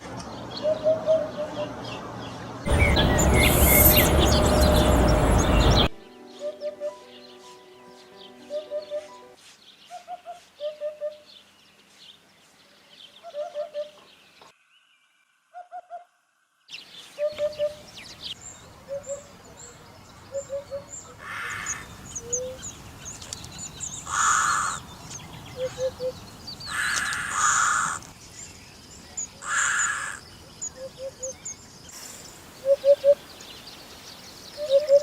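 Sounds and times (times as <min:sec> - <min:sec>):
small birds chirping: 0:00.2 - 0:15.0, 0:16.7 - 0:35.0
loud harsh bird calls: 0:02.7 - 0:05.9, 0:20.4 - 0:22.6, 0:23.8 - 0:24.9, 0:25.5 - 0:28.2, 0:29.4 - 0:30.3
hoopoe calling: 0:02.7 - 0:11.3, 0:17.2 - 0:17.8, 0:25.5 - 0:26.9, 0:32.6 - 0:33.2, 0:34.6 - 0:35.0.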